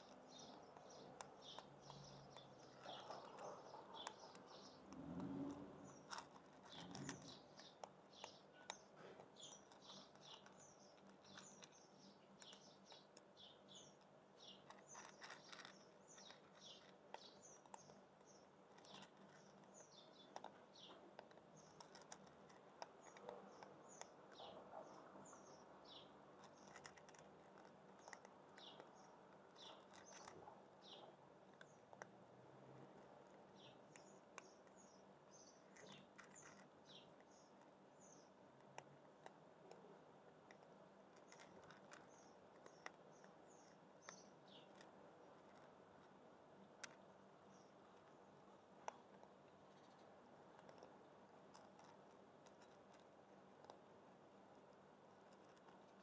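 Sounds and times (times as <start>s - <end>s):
small birds chirping: 0.0s - 56.0s
cat crunching dry kibble: 3.9s - 8.0s, 14.7s - 19.7s.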